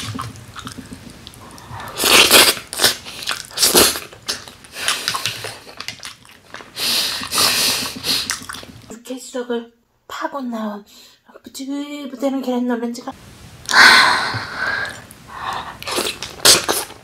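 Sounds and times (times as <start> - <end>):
close-miked crunchy chewing: 0.0 - 8.9, 15.8 - 17.0.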